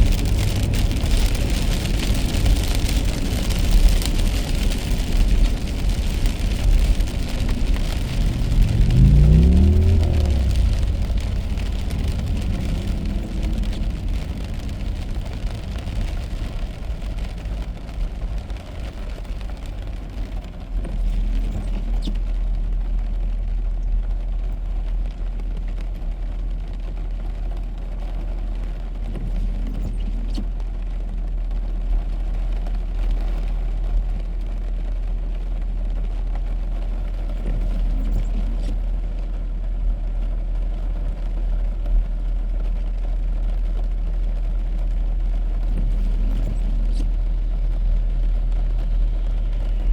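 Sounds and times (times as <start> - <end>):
tyre hiss on wet road: 0.0 - 17.6
car engine and tyre rumble: 0.0 - 49.9.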